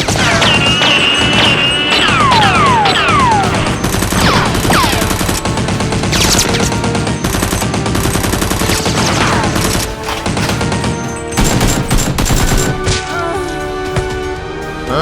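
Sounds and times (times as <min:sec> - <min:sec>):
rapid automatic gunfire: 0:00.0 - 0:12.8
descending whistles: 0:00.2 - 0:03.9.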